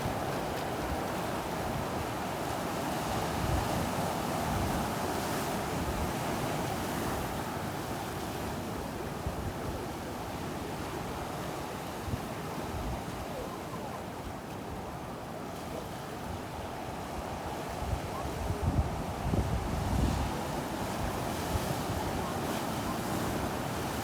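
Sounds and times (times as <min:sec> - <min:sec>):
wind buffeting microphone: 0:17.8 - 0:22.5.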